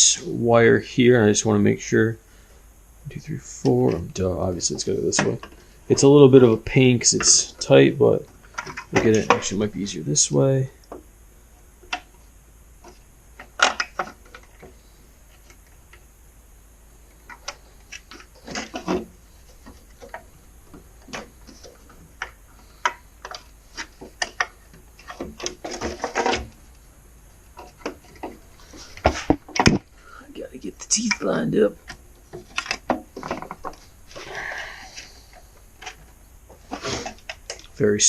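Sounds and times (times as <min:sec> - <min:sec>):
plastic and metal parts clicking: 0:31.0 - 0:33.8.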